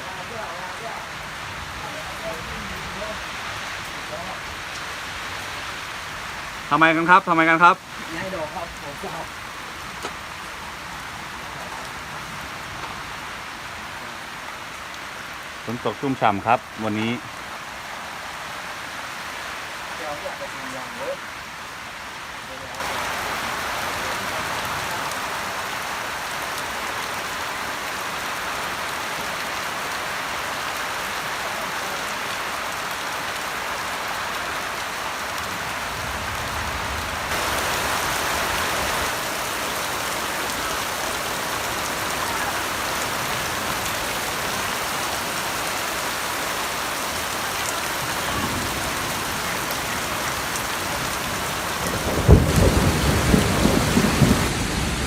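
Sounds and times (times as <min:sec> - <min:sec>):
heavy rain: 0:00.0 - 0:55.0
thunder clap: 0:51.8 - 0:55.0.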